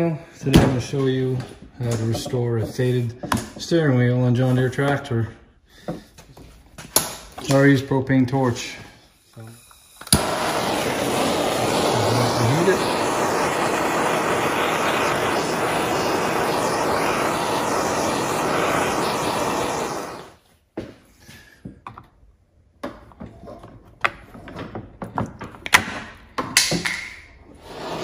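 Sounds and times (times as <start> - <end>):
torch flame hissing: 8.6 - 20.4, 27.5 - 28.0.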